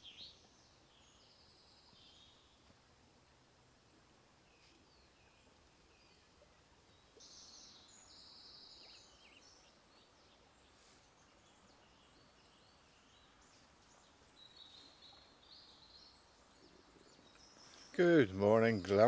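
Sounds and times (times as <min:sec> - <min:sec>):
faint outdoor hiss: 0:00.0 - 0:19.0
songbirds singing: 0:00.0 - 0:19.0.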